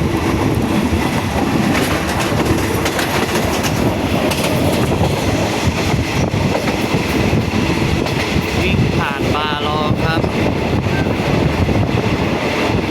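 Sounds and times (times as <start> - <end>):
wheels clacking over rails: 0.0 - 8.6
train rumbling along track: 0.0 - 12.9.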